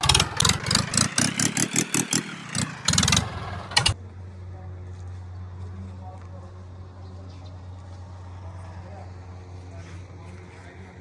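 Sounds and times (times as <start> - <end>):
engine running in fast pulses: 0.0 - 4.0.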